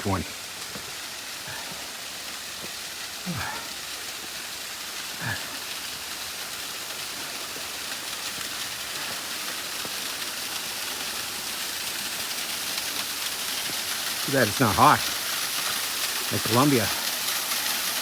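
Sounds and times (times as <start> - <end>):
mountain stream rushing: 0.0 - 18.0.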